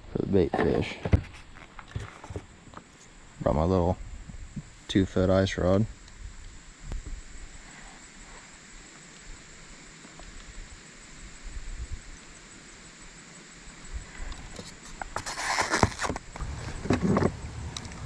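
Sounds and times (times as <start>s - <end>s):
outdoor background hiss: 0.0s - 18.0s
steady high-pitched whine: 0.0s - 18.0s
rustling and handling noise: 0.4s - 3.2s, 14.3s - 17.4s.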